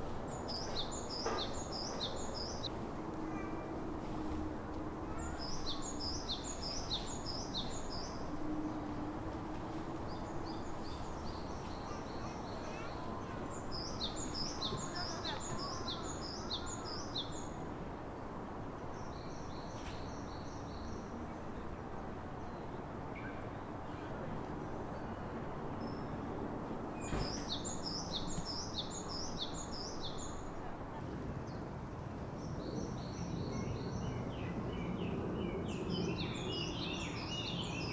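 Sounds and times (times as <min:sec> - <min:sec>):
outdoor background noise: 0:00.0 - 0:37.9
small songbird singing: 0:05.1 - 0:08.3, 0:10.2 - 0:17.6, 0:27.0 - 0:30.5.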